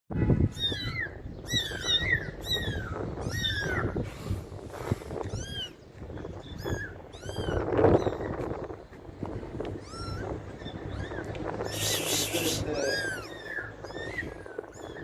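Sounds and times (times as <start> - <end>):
kittens mewing: 9.7 - 15.0.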